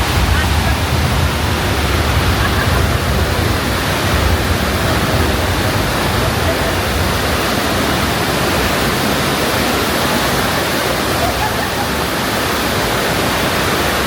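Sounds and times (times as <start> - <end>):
low rumble: 0.0 - 10.0
rushing water: 0.0 - 14.0.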